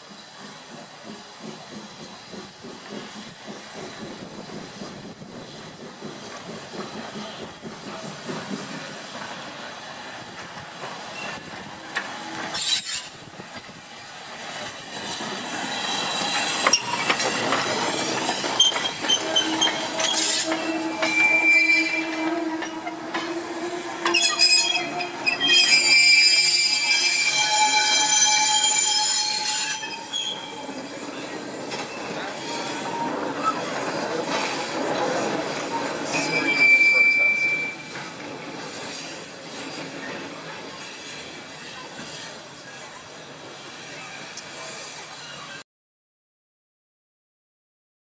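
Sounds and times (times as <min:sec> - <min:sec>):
railway wheels squealing: 0:10.8 - 0:13.6, 0:14.3 - 0:45.6.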